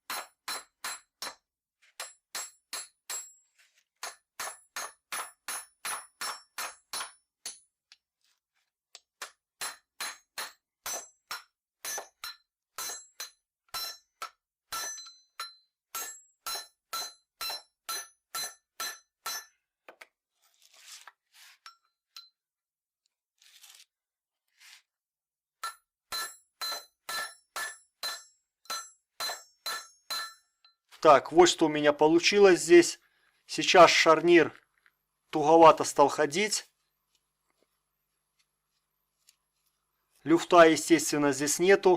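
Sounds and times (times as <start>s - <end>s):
hammer striking metal: 2.0s - 3.4s, 4.0s - 7.7s, 9.6s - 19.5s, 25.6s - 30.8s.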